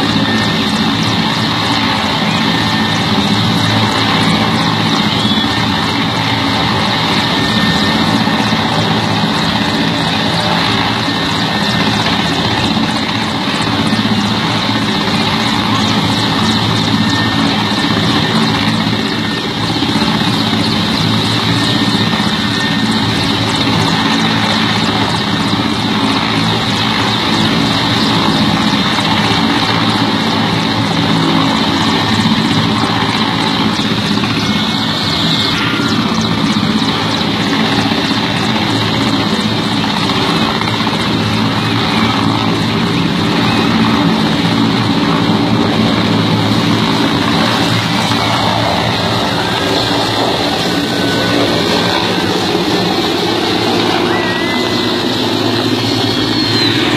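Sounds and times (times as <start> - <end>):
helicopter engine whine: 0.0 - 56.9
helicopter rotor beating: 0.0 - 56.9.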